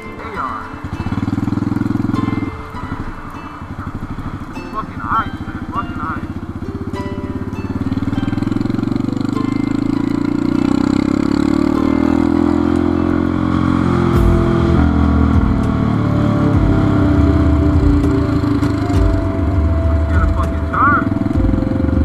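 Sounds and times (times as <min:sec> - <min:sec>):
motorcycle engine accelerating: 0:00.7 - 0:04.4, 0:07.2 - 0:22.0
uneven low rumble: 0:14.2 - 0:22.0.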